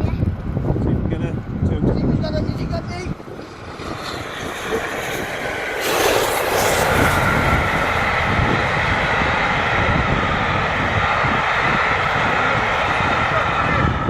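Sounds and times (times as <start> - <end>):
diesel locomotive engine running: 3.1 - 14.0.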